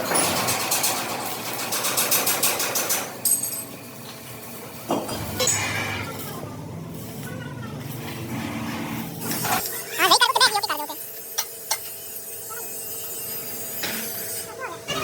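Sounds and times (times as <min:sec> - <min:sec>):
rhythmic mechanical clatter: 0:00.0 - 0:15.0.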